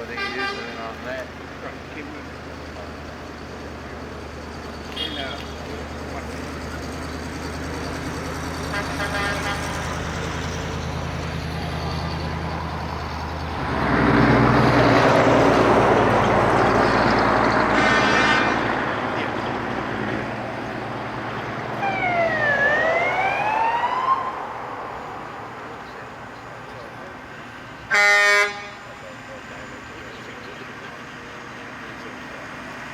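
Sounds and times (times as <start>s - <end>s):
truck horn blast: 0.0s - 0.9s, 4.9s - 5.6s, 8.6s - 10.0s, 14.2s - 19.2s, 27.9s - 29.0s
truck engine hum: 0.0s - 32.9s
truck passing: 0.0s - 32.9s
siren: 3.2s - 32.9s.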